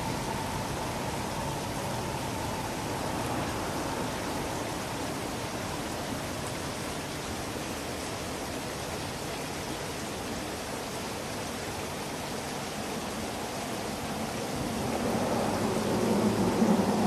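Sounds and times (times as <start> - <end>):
steady rushing noise: 0.0 - 6.8, 13.0 - 17.0.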